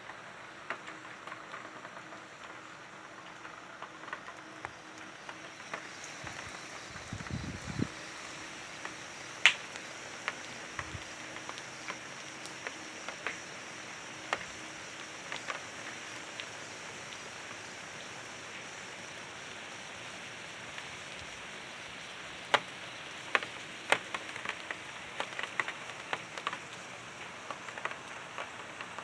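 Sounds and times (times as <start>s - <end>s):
steady rain hiss: 0.0s - 29.0s.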